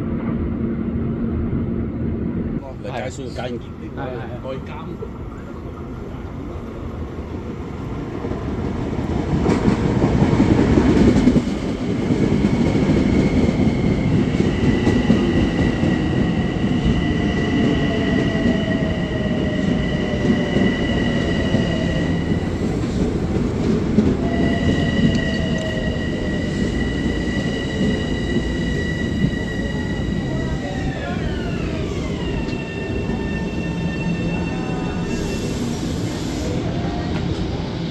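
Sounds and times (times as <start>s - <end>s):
train rumbling past: 0.0s - 37.9s.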